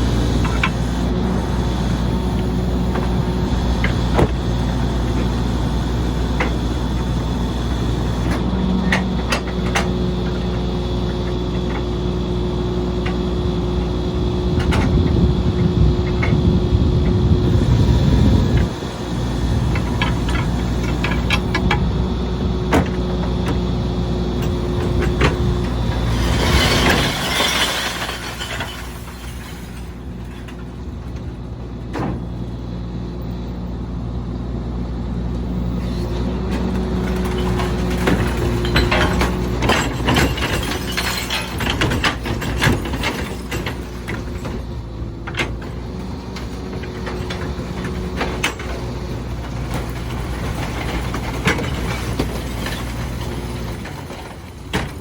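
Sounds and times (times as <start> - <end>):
garbage truck diesel engine: 0.0 - 55.0
glass breaking: 26.2 - 30.0.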